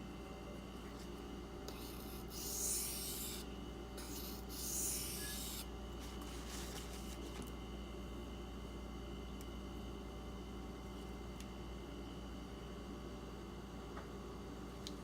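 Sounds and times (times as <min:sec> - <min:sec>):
knife scraping on sharpening stone: 0:04.0 - 0:05.6.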